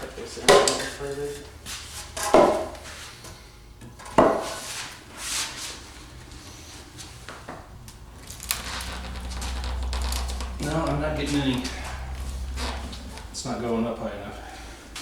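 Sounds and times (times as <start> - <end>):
wood and metal knocking: 2.2 - 2.8
low steady hum: 5.8 - 15.0.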